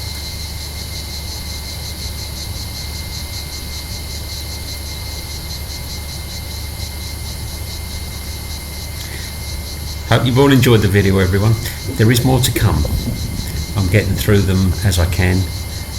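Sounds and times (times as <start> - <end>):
cicadas buzzing: 1.6 - 15.9
low steady rumble: 9.2 - 15.9.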